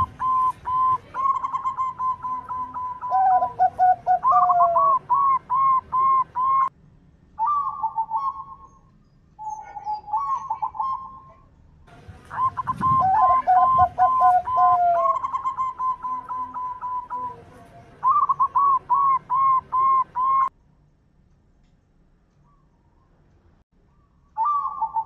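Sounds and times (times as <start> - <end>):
doves cooing: 0.0 - 6.7, 9.4 - 11.3, 12.0 - 20.5, 24.4 - 25.0.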